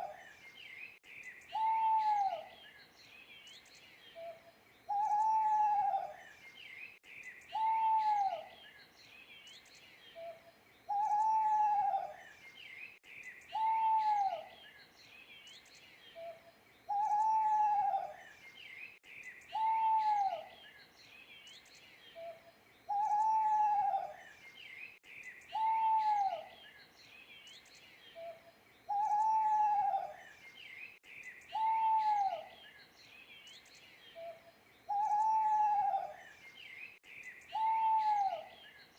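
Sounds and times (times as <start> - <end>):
faint high bird chirps: 0.0 - 38.9
owl hooting: 1.5 - 2.5, 4.2 - 6.2, 7.5 - 8.5, 10.2 - 12.2, 13.5 - 14.5, 16.2 - 18.2, 19.5 - 20.5, 22.2 - 24.2, 25.5 - 26.5, 28.2 - 30.2, 31.5 - 32.6, 34.2 - 36.2, 37.5 - 38.6.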